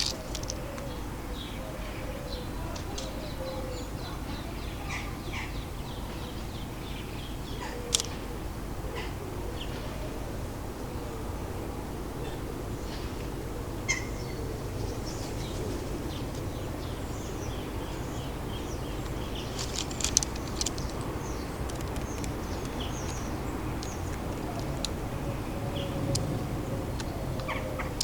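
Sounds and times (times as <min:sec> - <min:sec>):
sharp clicks: 0:00.0 - 0:00.9, 0:07.9 - 0:08.2, 0:19.0 - 0:25.2
small birds chirping: 0:00.0 - 0:09.8, 0:13.9 - 0:28.0
low city rumble: 0:00.0 - 0:28.0.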